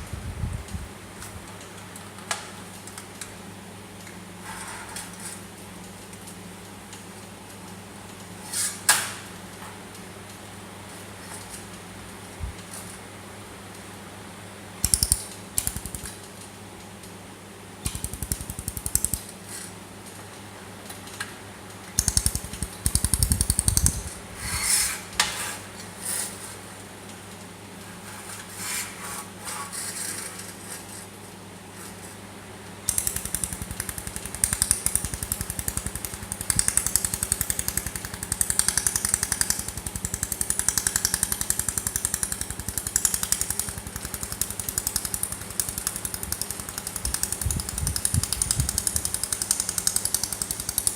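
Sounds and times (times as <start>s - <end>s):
steady electrical hum: 0.0s - 50.9s
laser welder ticking pulses: 14.8s - 16.2s, 17.8s - 19.3s, 22.0s - 24.1s, 32.9s - 50.9s.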